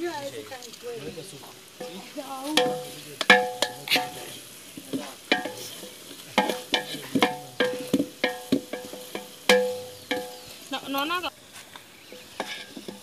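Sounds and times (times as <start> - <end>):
spoon knocking metal pot: 1.8 - 10.6, 12.1 - 13.0.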